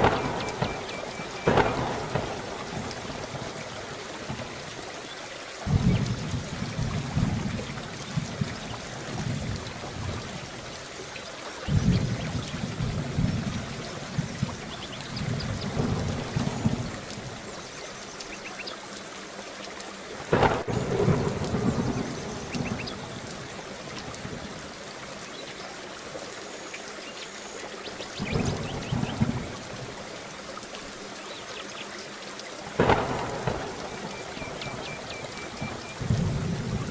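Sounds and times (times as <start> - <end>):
rolling thunder: 0.0 - 4.5, 5.6 - 10.4, 11.7 - 17.4, 20.3 - 24.5, 28.2 - 30.0, 32.8 - 36.9
dripping water: 0.0 - 36.9
steady rain: 0.0 - 36.9.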